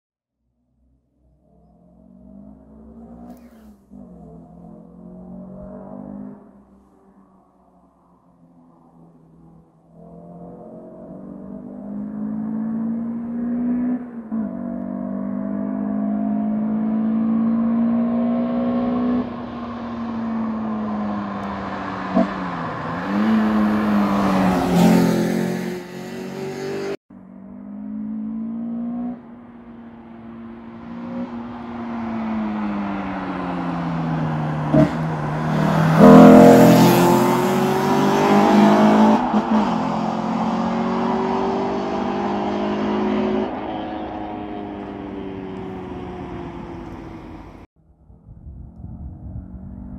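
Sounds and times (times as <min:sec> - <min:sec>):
car engine revving hard: 0:20.2 - 0:27.0, 0:32.4 - 0:47.6.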